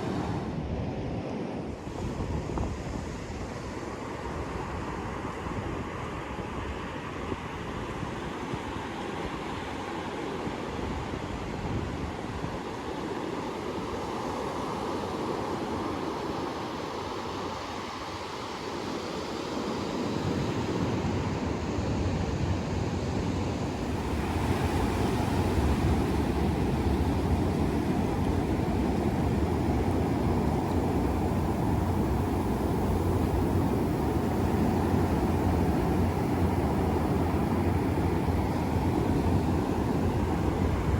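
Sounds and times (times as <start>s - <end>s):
ocean surf washing onto beach: 0.0s - 0.6s, 12.6s - 40.9s
wind buffeting microphone: 20.2s - 40.9s.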